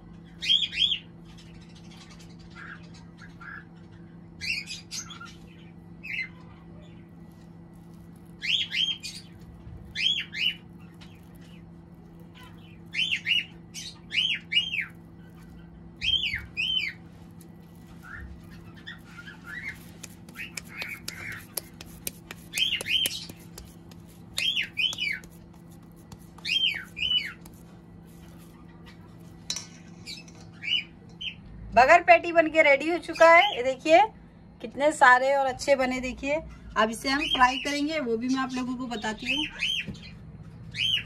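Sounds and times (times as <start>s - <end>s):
steady low hum: 0.0s - 41.0s
bird chirping: 0.3s - 29.4s.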